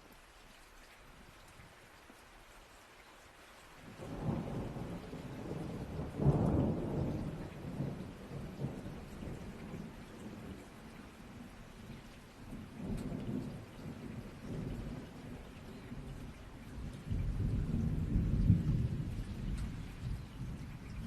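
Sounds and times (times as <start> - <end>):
rain falling: 0.0 - 21.0
rolling thunder: 4.0 - 10.8, 12.4 - 21.0.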